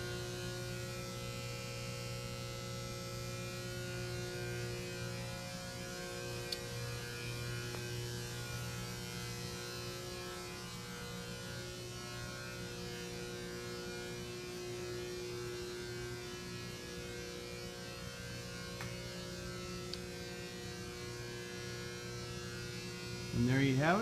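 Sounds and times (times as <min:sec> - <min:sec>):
steady hum of constant tones: 0:00.0 - 0:24.0.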